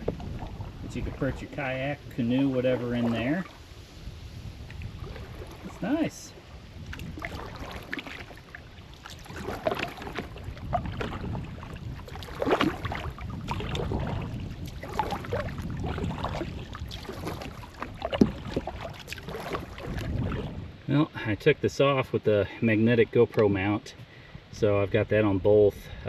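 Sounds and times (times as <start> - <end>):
wind on microphone: 0.0 - 20.9
water splashing against hull: 0.0 - 21.2, 22.9 - 26.0
knocks against boat: 17.1 - 20.4.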